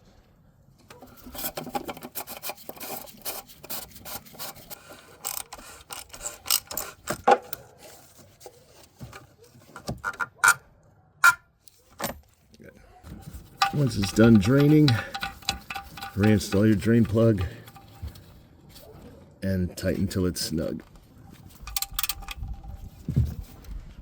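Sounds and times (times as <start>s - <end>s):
hands rubbing and scraping plastic: 0.9s - 10.6s, 11.2s - 19.2s.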